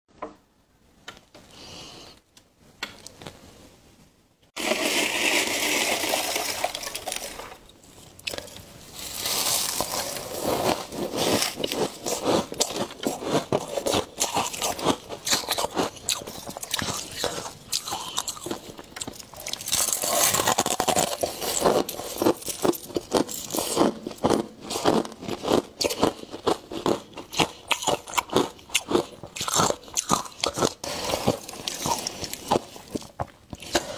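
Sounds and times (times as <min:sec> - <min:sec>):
ice scraping: 0:04.6 - 0:18.3, 0:19.4 - 0:24.8
ice and frost crunching: 0:04.6 - 0:33.9.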